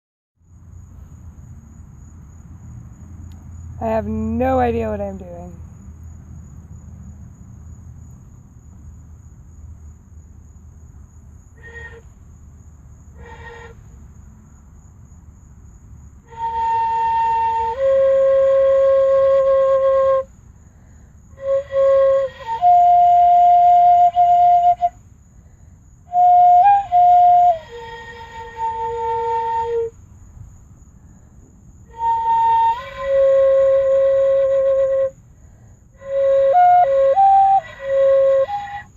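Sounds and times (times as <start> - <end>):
faint low background rumble: 0.4 - 38.9
fife long held notes: 16.3 - 20.3, 21.3 - 25.0, 26.1 - 29.9, 31.9 - 35.2, 36.0 - 38.9.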